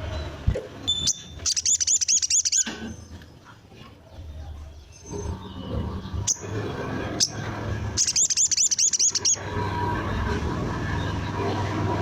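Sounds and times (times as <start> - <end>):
bird singing high notes and trill: 0.0 - 3.2, 4.8 - 9.5.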